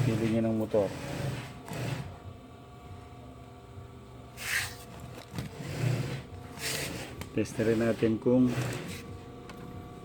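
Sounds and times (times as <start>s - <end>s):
steady low hum: 0.0s - 10.0s
wires scraping rustle: 4.4s - 9.1s.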